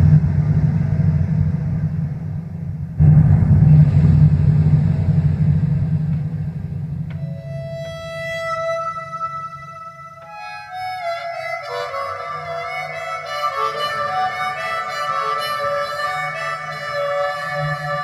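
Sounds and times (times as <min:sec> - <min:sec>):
low rumbling band: 0:00.0 - 0:18.0
harmonica playing chords: 0:07.2 - 0:18.0.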